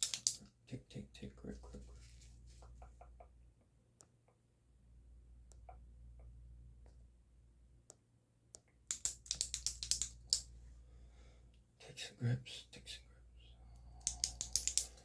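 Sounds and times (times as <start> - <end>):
close-miked ticks and clicks: 0.0 - 0.5, 7.9 - 10.5, 13.7 - 15.0.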